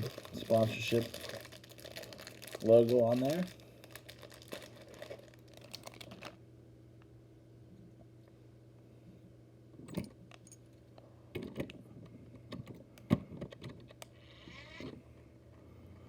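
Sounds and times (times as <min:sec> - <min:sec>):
plastic bag rustle: 0:00.0 - 0:06.4.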